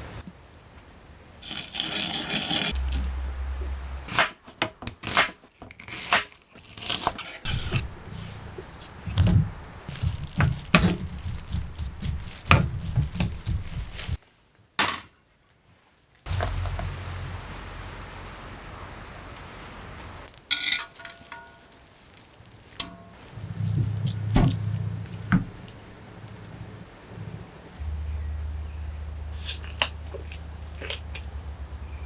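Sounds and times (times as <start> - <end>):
utensils scraping and knocking cookware: 7.4 - 14.2.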